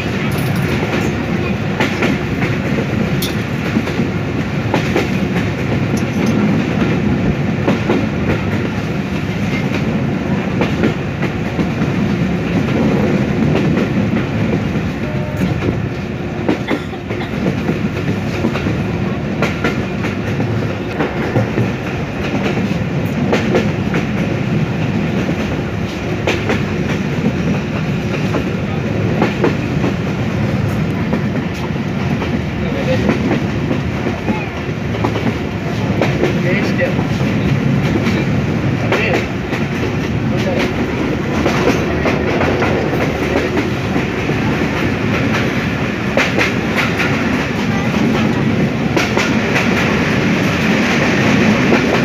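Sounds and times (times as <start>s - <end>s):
wheels clicking over rail joints: 0.0s - 9.9s
train wheels rumbling on rails: 0.0s - 52.0s.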